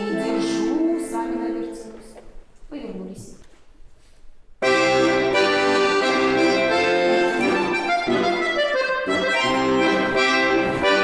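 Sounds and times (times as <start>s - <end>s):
accordion playing chords: 0.0s - 0.9s, 4.6s - 11.0s.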